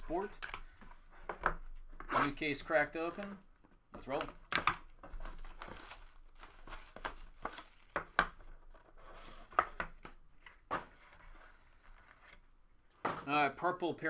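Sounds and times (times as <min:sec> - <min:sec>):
packaging tearing and crinkling: 0:04.1 - 0:08.2.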